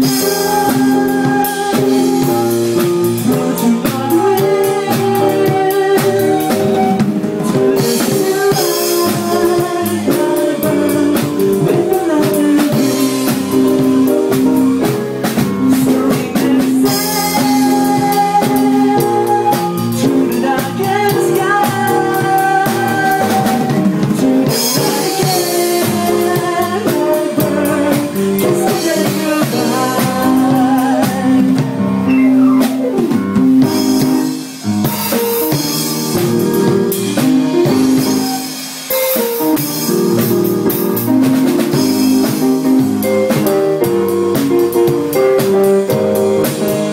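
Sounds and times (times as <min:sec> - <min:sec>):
drum kit beat: 0:00.0 - 0:46.9
keyboard: 0:00.0 - 0:46.9.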